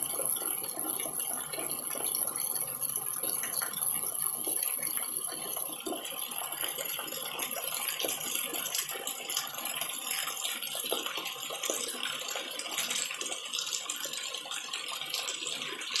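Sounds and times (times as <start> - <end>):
raindrops pattering: 0.0 - 16.0.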